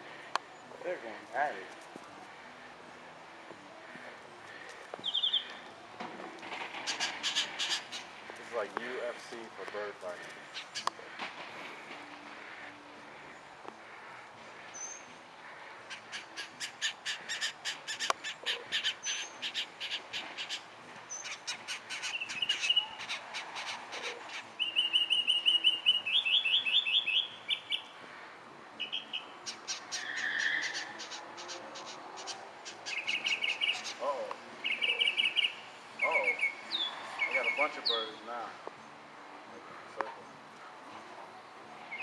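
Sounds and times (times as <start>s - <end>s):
small birds chirping: 3.9s - 5.8s, 6.8s - 11.1s, 12.4s - 28.1s, 28.8s - 38.9s.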